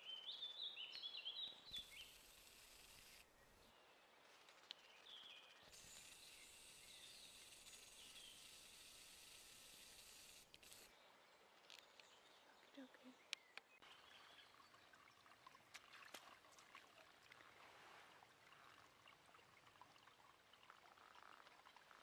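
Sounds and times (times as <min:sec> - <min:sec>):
songbird chirping: 0:00.0 - 0:02.6, 0:03.2 - 0:08.5, 0:10.8 - 0:15.3
faint steady hiss: 0:00.8 - 0:14.5.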